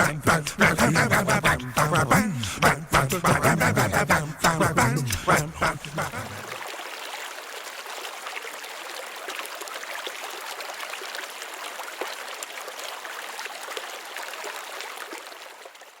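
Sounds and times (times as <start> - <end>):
creek babbling over stones: 4.5 - 16.0.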